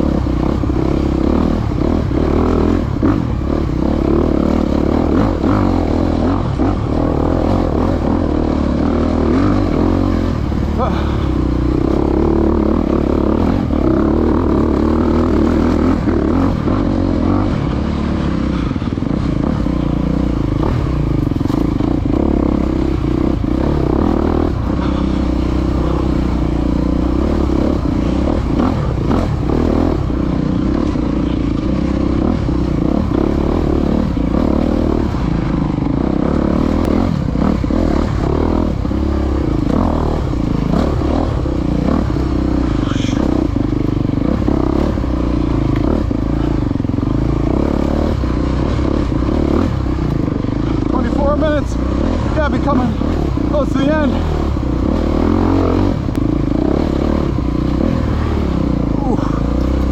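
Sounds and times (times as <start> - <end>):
dirt bike engine running: 0.0 - 59.9
bike knocking and rattling: 18.3 - 59.9.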